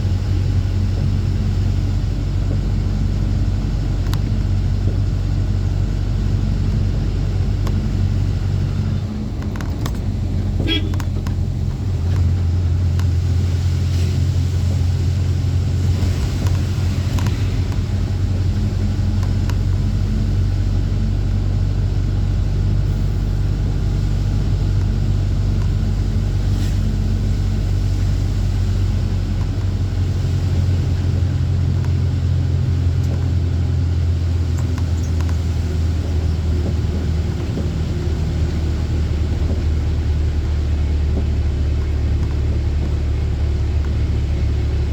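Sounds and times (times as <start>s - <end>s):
truck diesel engine droning: 0.0s - 44.9s
faint clicks and rattles: 9.0s - 13.2s.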